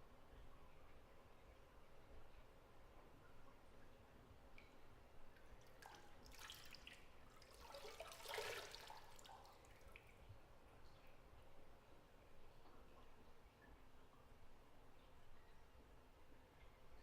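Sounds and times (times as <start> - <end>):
water dripping: 0.4 - 15.8
water sloshing: 5.7 - 9.8.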